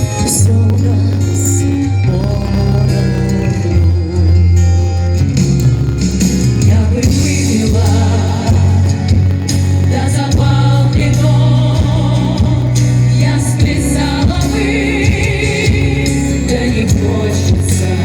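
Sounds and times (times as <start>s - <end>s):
women singing with vibrato: 0.0s - 4.8s, 6.6s - 18.0s
instrumental accompaniment with bass: 0.0s - 18.0s.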